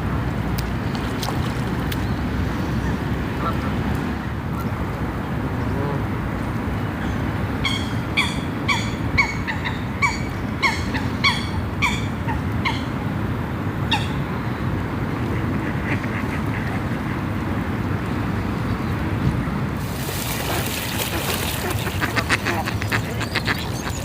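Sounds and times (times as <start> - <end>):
geese honking: 20.4 - 24.0.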